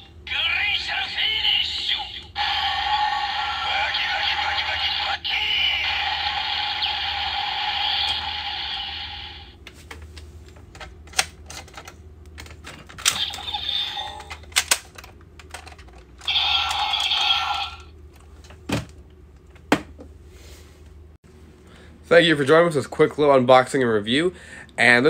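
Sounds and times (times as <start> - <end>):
toy electronic sound effects: 0.0 - 9.6, 13.1 - 14.5, 16.2 - 17.9.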